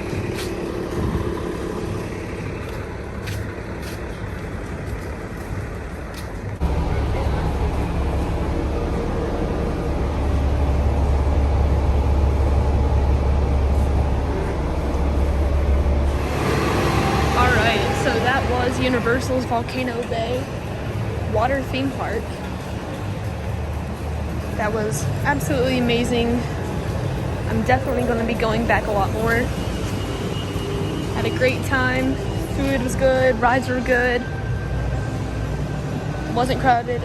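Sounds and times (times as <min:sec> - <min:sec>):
deep low rumble: 0:00.0 - 0:36.1
road vehicle noise: 0:00.0 - 0:37.0.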